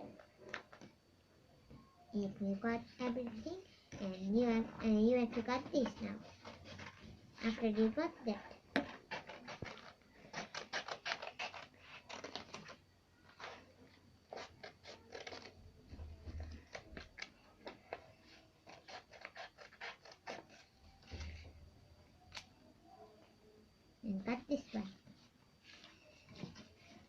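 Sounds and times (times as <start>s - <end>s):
scissors snipping paper: 8.8s - 12.8s, 18.6s - 20.7s.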